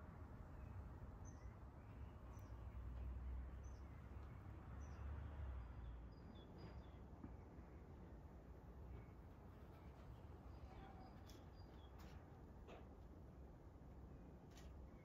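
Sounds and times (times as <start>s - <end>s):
songbird chirps: 0.6s - 5.2s, 9.7s - 12.3s.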